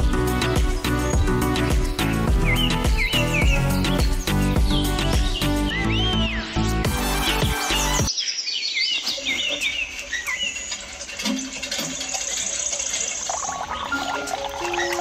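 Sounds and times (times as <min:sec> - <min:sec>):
background music: 0:00.0 - 0:08.1, 0:13.6 - 0:15.0
birds chirping: 0:00.0 - 0:15.0.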